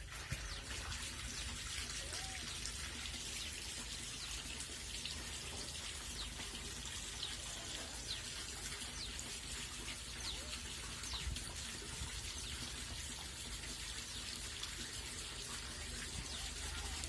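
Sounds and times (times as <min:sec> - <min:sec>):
running water trickling: 0:00.0 - 0:17.0.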